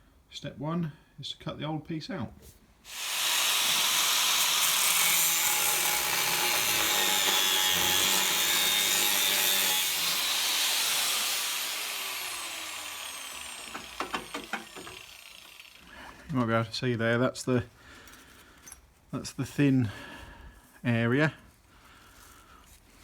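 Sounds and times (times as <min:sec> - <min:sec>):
angle grinder cutting steel: 0:02.9 - 0:16.0.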